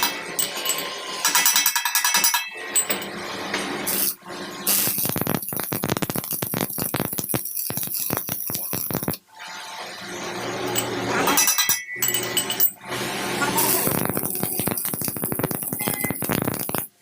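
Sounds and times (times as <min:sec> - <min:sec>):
metal clinking and rattling: 0:00.0 - 0:03.1, 0:10.7 - 0:12.8
rapid clicks: 0:13.6 - 0:16.9.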